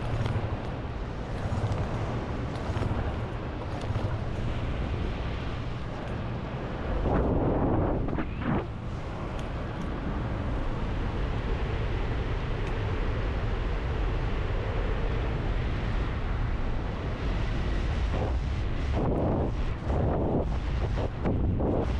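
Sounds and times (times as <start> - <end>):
low engine rumble: 0.0 - 17.3
wind rush on microphone: 0.0 - 21.9.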